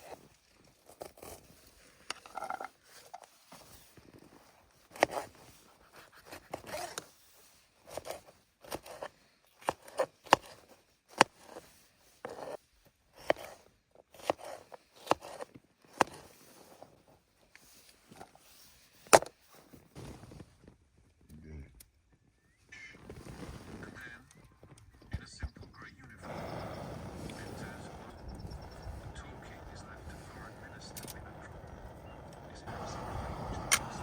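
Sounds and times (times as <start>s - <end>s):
soft rustling: 0.0s - 21.3s, 22.1s - 25.0s.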